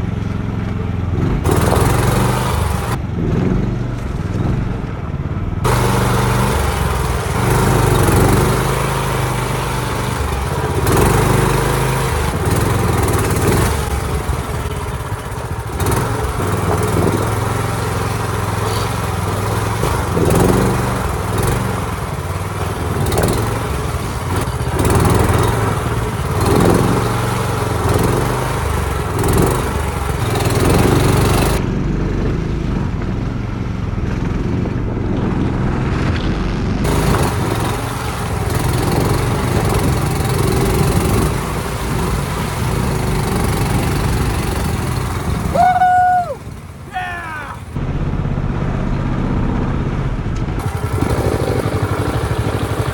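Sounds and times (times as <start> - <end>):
boat motor running hard: 0.0 - 52.9.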